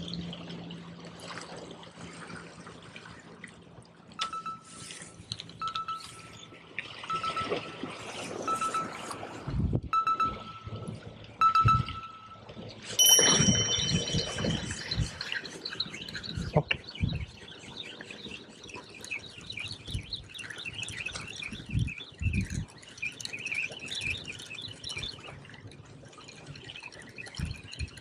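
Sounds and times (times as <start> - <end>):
high whistle-like tone: 10.0 - 12.4, 13.0 - 15.3.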